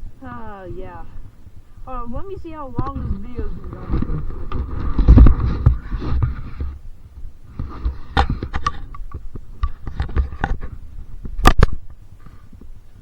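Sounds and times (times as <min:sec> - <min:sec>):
camera handling clicks and rustles: 0:07.6 - 0:10.7.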